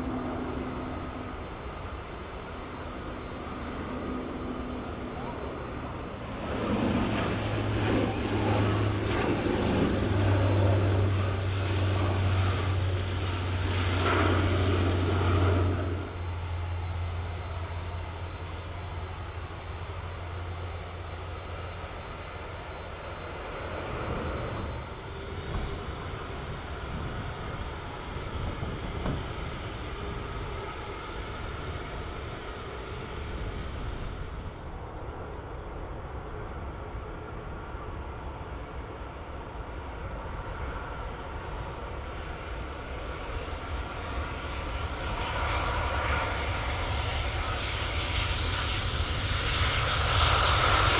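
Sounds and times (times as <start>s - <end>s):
airliner engines running: 0.0s - 50.9s
thin high whine: 0.0s - 50.9s.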